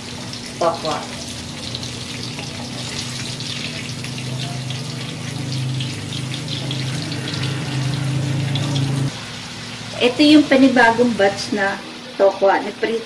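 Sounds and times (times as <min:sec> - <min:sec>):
tofu frying in hot oil: 0:00.0 - 0:13.0.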